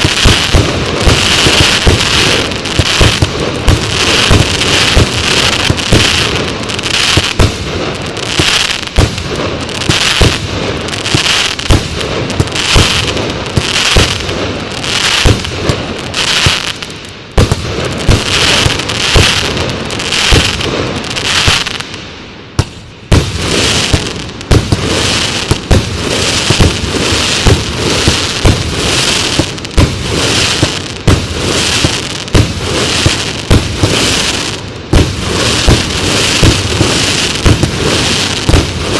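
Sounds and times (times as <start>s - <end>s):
firework launch bangs: 0.0s - 6.4s
firework crackling: 0.0s - 38.9s.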